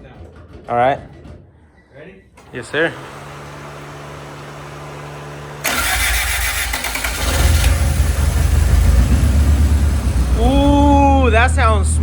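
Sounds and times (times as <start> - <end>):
car engine idling: 2.4 - 12.0
starter motor cranking: 5.6 - 8.9.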